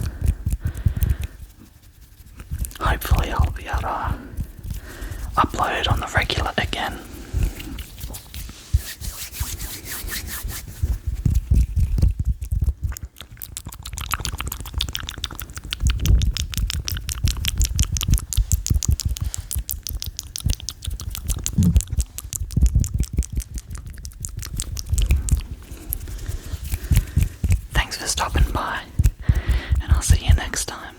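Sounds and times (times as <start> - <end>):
hands rubbing near microphone: 0.0 - 12.5, 15.2 - 22.9, 24.4 - 30.9
wet mouth clicks and smacks: 0.0 - 30.9.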